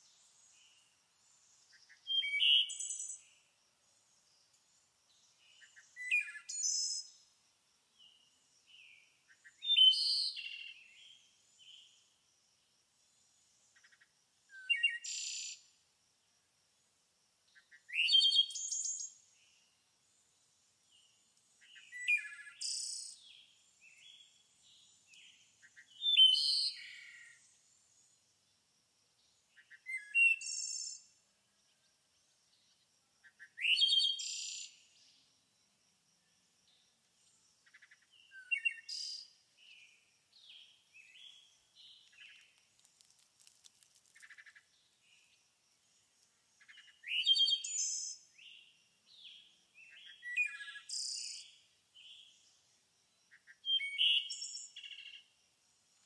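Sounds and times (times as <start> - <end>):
bird song phrase: 0.0 - 3.6, 4.2 - 7.3, 7.9 - 12.1, 13.7 - 15.7, 17.5 - 19.8, 20.9 - 27.6, 29.2 - 31.9, 32.5 - 35.3, 36.2 - 42.5, 46.6 - 52.6, 53.3 - 55.3
soft bird chirps: 0.0 - 12.2, 13.2 - 15.8, 17.5 - 28.2, 29.3 - 31.8, 36.2 - 56.0.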